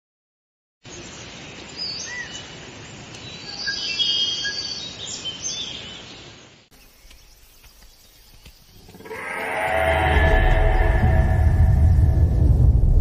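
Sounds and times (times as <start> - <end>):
outdoor ambient hiss: 0.8 - 12.9
birds chirping and whistling: 6.8 - 12.5.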